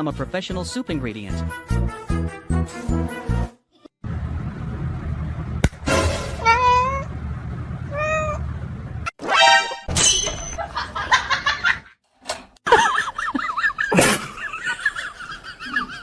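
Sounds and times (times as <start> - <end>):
laughter: 10.6 - 12.0, 12.7 - 16.0.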